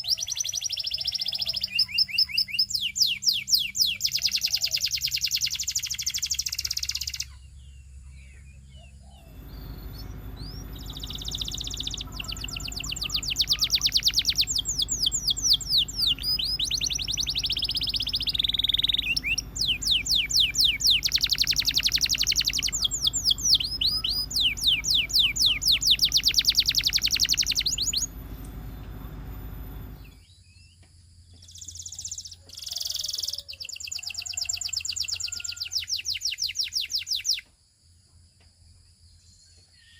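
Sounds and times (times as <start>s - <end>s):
canary singing trills: 0.0s - 30.2s, 31.4s - 37.4s
steady low hum: 7.4s - 30.4s.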